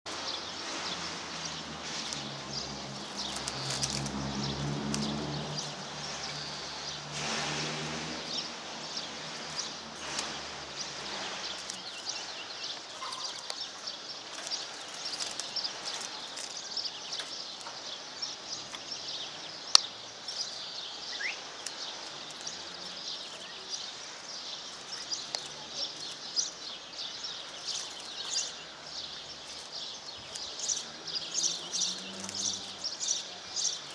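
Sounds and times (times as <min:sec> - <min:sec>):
low engine rumble: 0:00.2 - 0:13.4
finch singing trills: 0:08.2 - 0:33.9.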